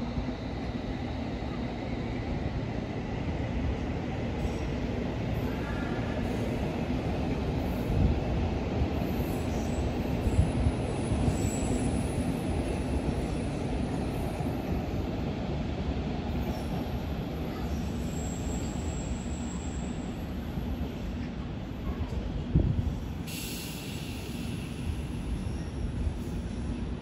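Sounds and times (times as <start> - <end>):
train rumble and electric hum: 0.0 - 27.0
faint high wheel squeals: 17.6 - 20.3.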